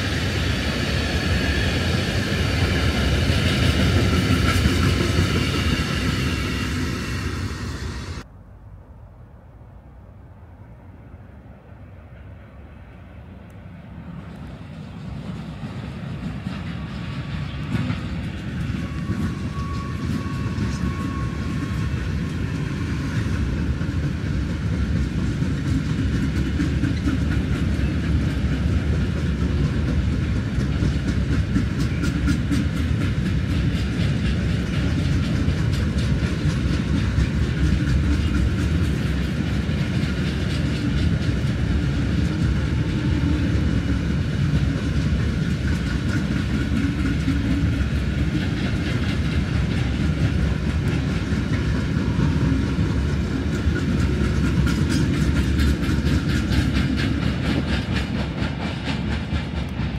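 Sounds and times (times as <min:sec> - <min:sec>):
train wheels rumbling: 0:00.0 - 0:08.4, 0:10.4 - 0:59.9
wheels clicking over track: 0:16.2 - 0:59.9.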